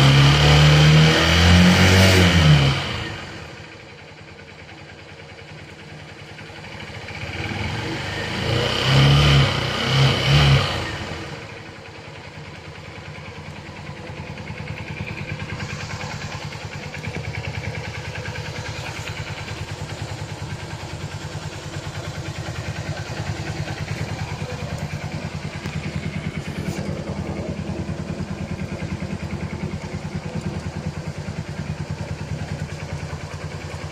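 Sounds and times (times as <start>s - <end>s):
small motorcycle engine revving: 0.0s - 3.7s, 6.6s - 11.7s, 14.6s - 30.3s.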